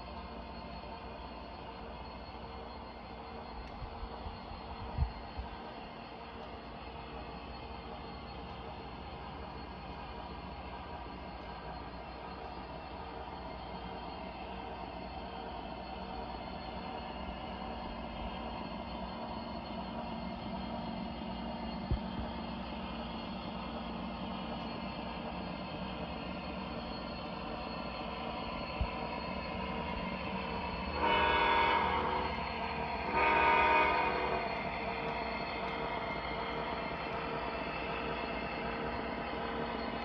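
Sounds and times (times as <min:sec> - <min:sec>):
diesel engine drone: 0:00.0 - 0:40.0
train rolling on track: 0:00.0 - 0:40.0
train horn blasts: 0:30.9 - 0:35.2.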